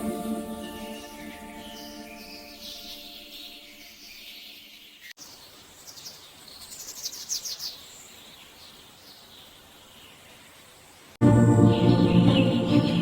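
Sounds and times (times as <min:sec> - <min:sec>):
faint bird chirping: 0:00.6 - 0:13.0
soft steady hiss: 0:05.1 - 0:11.2.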